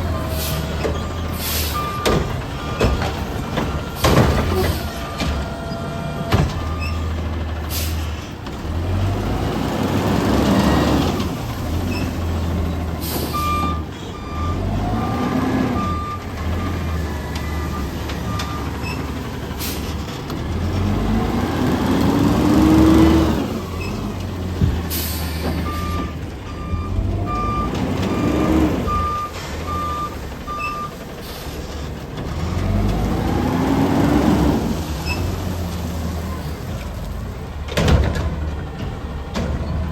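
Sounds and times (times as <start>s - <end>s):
garbage truck diesel engine revving: 0.0s - 39.9s
reversing beeps: 0.1s - 3.1s, 3.7s - 7.1s, 13.2s - 19.1s, 25.2s - 31.0s
air brake hisses: 0.3s - 0.7s, 1.3s - 1.8s, 7.7s - 8.2s, 24.9s - 25.6s.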